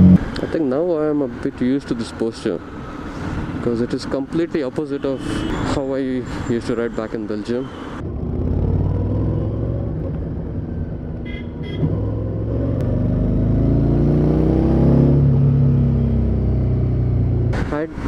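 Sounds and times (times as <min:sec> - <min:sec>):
motorcycle engine accelerating: 0:08.0 - 0:11.2, 0:11.8 - 0:17.5.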